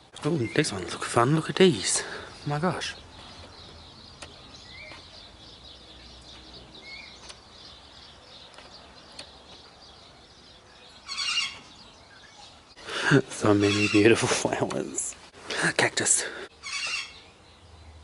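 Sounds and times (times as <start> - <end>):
birds chirping: 0.0 - 18.0
loud bird call: 9.9 - 13.0, 16.6 - 17.4.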